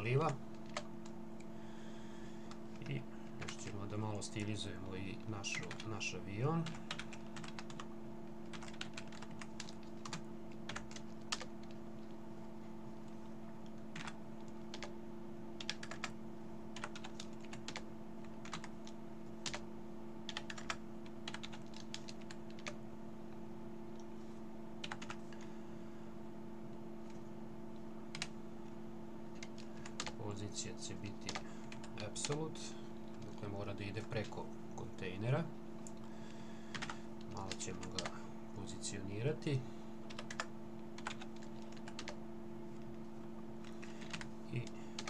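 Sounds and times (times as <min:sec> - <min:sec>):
low electrical hum: 0:00.0 - 0:45.0
keyboard typing: 0:00.1 - 0:01.2, 0:06.6 - 0:12.1, 0:13.6 - 0:14.9, 0:15.6 - 0:19.6, 0:20.3 - 0:22.8, 0:24.8 - 0:25.2, 0:28.1 - 0:28.3, 0:29.3 - 0:30.2, 0:31.2 - 0:32.4, 0:36.7 - 0:38.2, 0:40.1 - 0:42.2, 0:43.6 - 0:45.0.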